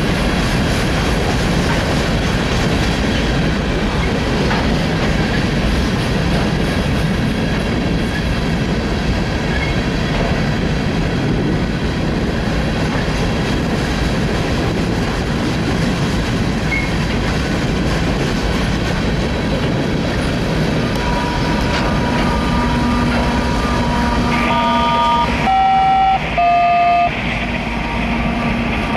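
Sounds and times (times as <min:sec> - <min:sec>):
diesel locomotive drone: 0:00.0 - 0:28.9
train cars rumbling and clattering: 0:00.0 - 0:28.9
high shifting tones: 0:20.9 - 0:28.9.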